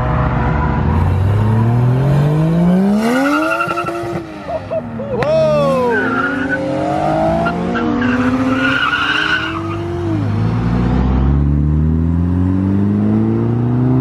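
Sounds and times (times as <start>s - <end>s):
car engine revving hard: 0.9s - 4.4s.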